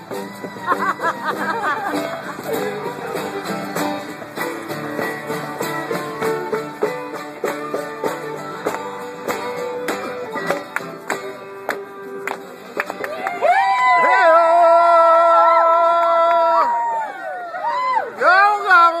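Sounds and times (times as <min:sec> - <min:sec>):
acoustic string band playing: 0:00.0 - 0:14.2.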